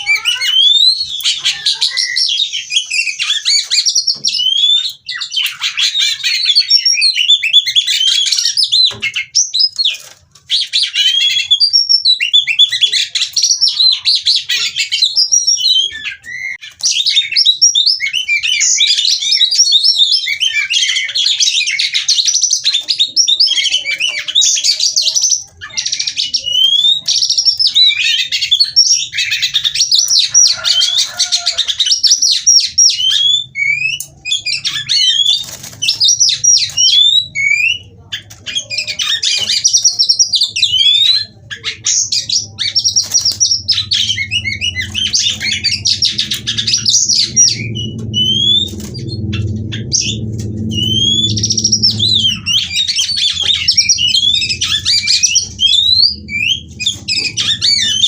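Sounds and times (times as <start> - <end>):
bird singing whistles and trills: 0.0 - 58.0
faint low hum: 33.9 - 58.0.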